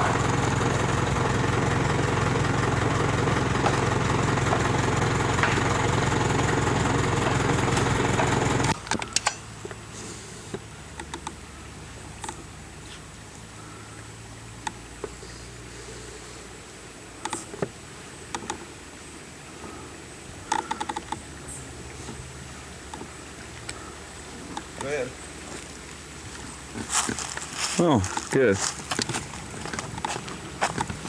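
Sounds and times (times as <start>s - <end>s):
motor engine running: 0.0s - 8.8s, 26.2s - 31.0s.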